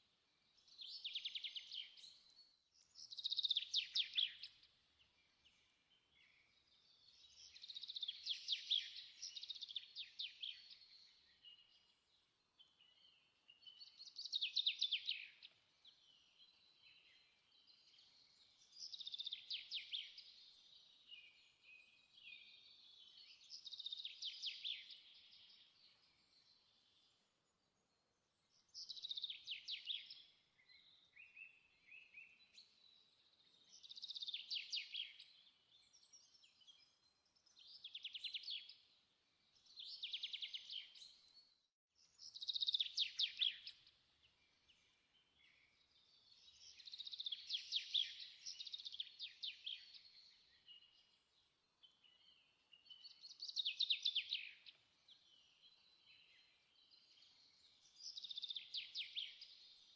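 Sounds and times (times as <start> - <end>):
songbird singing trilled phrases: 0.5 - 4.6, 42.1 - 43.9, 44.8 - 51.2, 51.8 - 59.9.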